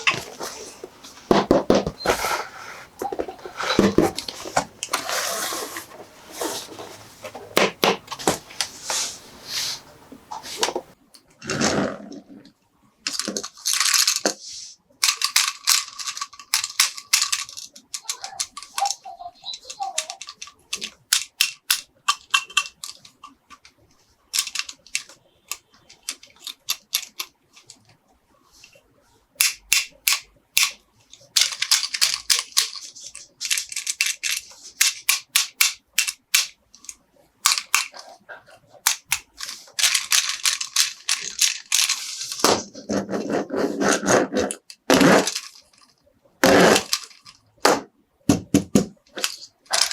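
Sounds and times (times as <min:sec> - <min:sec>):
plastic toy parts clicking: 0:13.1 - 0:14.4, 0:15.0 - 0:27.9, 0:29.4 - 0:38.2, 0:38.8 - 0:42.6, 0:43.9 - 0:47.7, 0:48.3 - 0:49.9
plastic packaging crinkling: 0:39.0 - 0:42.5.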